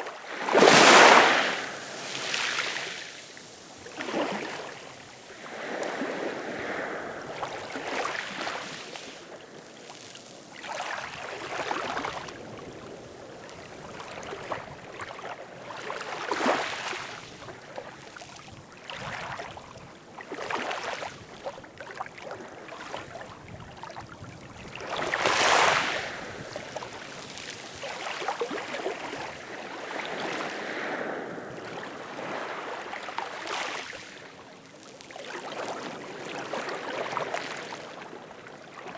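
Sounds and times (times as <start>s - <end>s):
ocean waves washing in: 0.0s - 14.2s.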